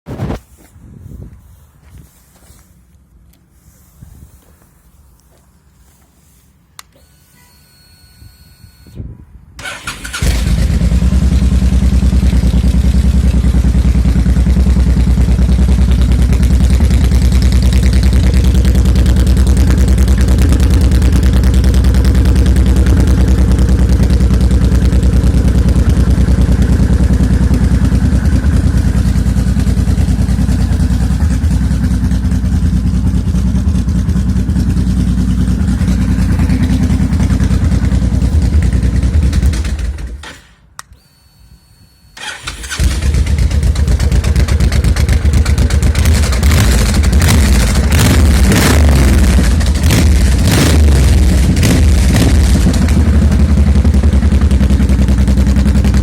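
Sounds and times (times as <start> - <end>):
motorcycle starter cranking: 9.6 - 10.9, 38.0 - 41.2, 42.1 - 48.4
motorcycle engine idling: 9.6 - 40.2, 42.3 - 56.0.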